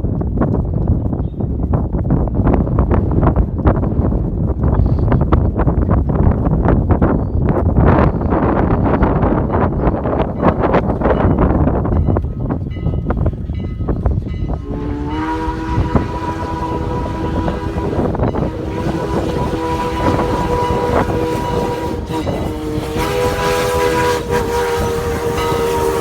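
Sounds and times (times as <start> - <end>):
locomotive and train rumbling: 0.0 - 26.0
steam locomotive whistle: 14.5 - 26.0.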